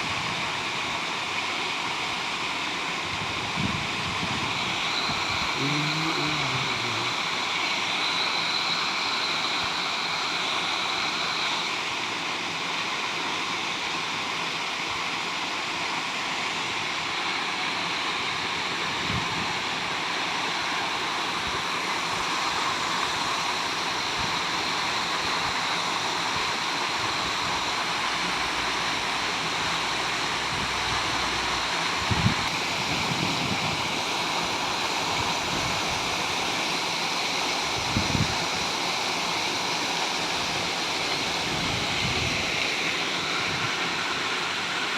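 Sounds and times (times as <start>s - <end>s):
waterfall splashing: 19.6s - 44.9s.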